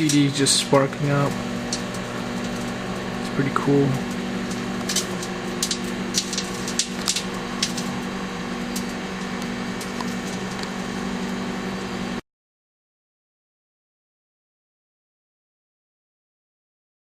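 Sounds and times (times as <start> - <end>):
crackling electrical snaps: 0.0 - 11.4
microwave oven humming: 0.0 - 12.2.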